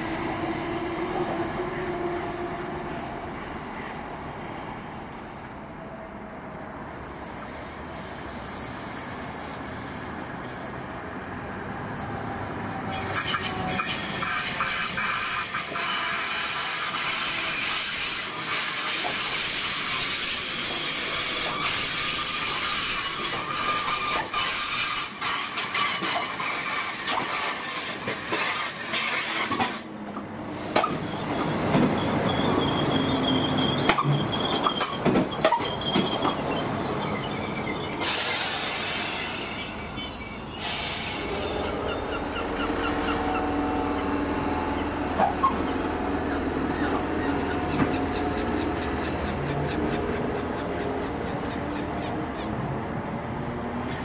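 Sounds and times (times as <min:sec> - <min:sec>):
train rumble: 0:00.0 - 0:54.0
wheels squealing: 0:30.8 - 0:52.7.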